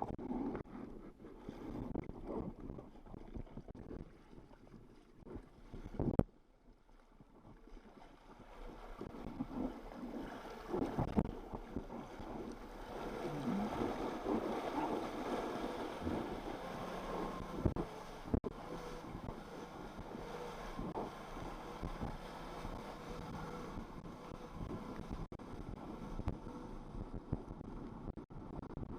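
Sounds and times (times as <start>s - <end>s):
jet ski engine running: 8.6s - 28.9s
wind buffeting microphone: 8.8s - 28.9s.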